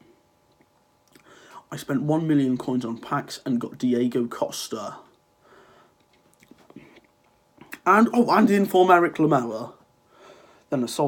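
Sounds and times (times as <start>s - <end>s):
faint breath: 1.2s - 1.7s, 5.4s - 6.0s, 10.0s - 10.7s.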